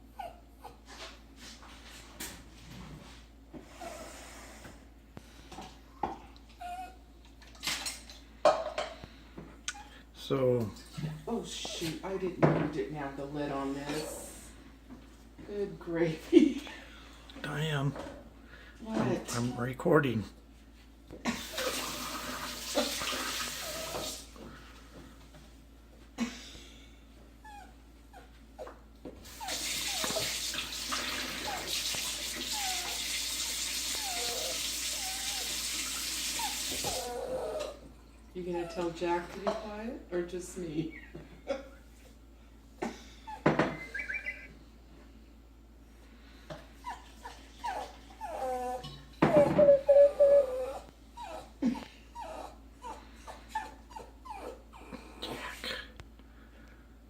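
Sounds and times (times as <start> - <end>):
dog whining and whimpering: 0.0 - 0.9, 3.7 - 4.6, 6.5 - 7.2, 23.6 - 24.2, 27.4 - 30.7, 32.4 - 35.7, 36.4 - 38.9, 43.2 - 44.6, 46.8 - 55.6
squeaky animal calls: 43.7 - 44.5.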